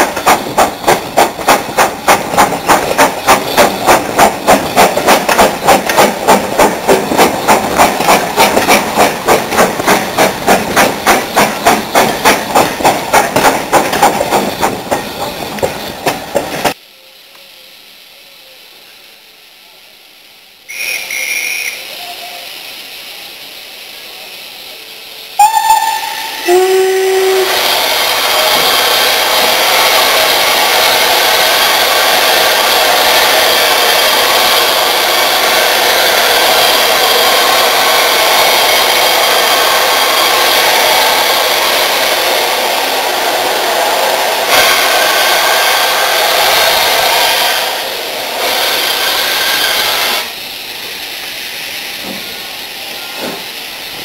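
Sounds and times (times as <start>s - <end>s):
steam hissing: 0.0s - 54.0s
steam locomotive whistle: 20.7s - 22.6s, 25.4s - 27.7s, 48.4s - 50.3s.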